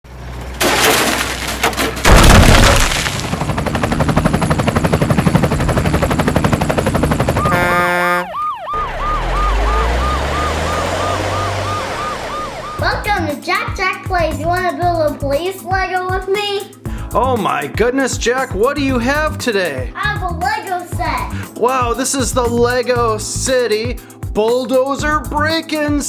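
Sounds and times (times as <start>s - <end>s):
loud crash: 0.6s - 3.4s
fast rattling like gunfire: 1.9s - 7.6s
police siren yelping: 7.3s - 13.3s.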